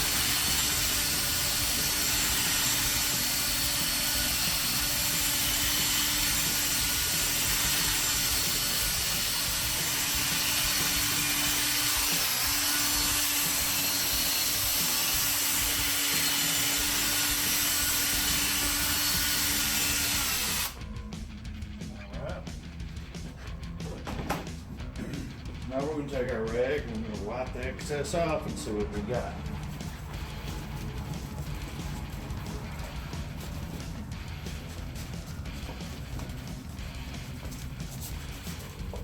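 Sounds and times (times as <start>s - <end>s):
power drill polishing: 0.0s - 20.8s.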